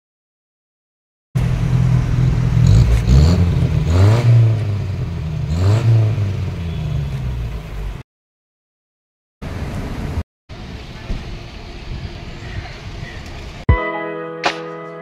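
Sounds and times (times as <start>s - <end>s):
car engine revving: 1.4s - 8.0s.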